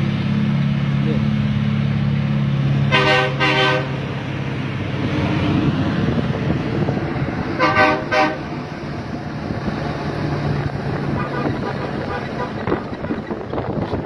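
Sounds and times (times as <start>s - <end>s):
engine and road noise: 0.0s - 14.0s
truck horn toots: 2.9s - 4.2s, 7.5s - 8.7s, 10.8s - 14.0s.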